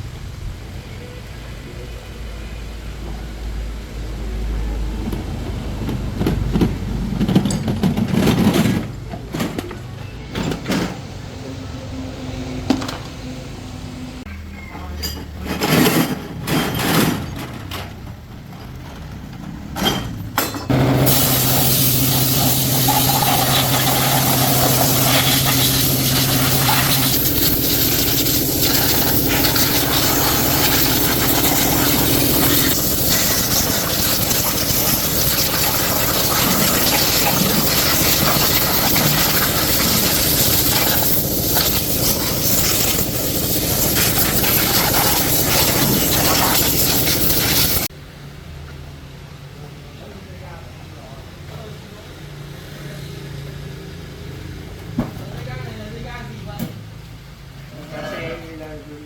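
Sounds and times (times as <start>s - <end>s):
machine running with hiss: 20.7s - 47.9s.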